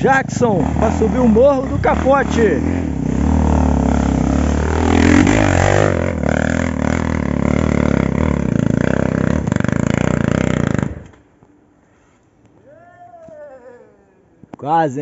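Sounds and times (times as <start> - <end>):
motorcycle engine running hard: 0.0 - 11.1.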